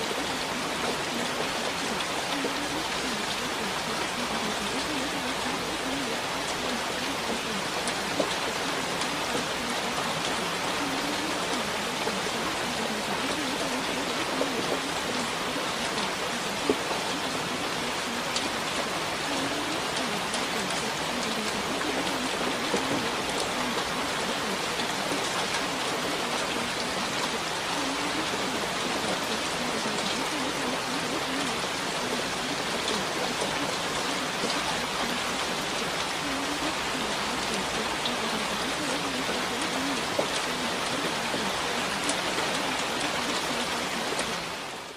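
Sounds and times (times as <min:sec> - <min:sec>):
rain falling: 0:00.0 - 0:44.9
raindrop ticks: 0:00.0 - 0:44.9.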